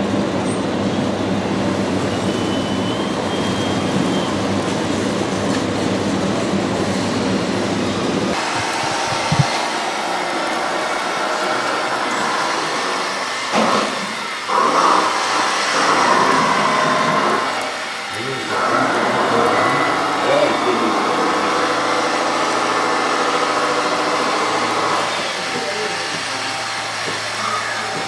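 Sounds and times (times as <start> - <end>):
steady mechanical noise: 0.0 - 28.0
small electric motors whining: 8.4 - 28.0.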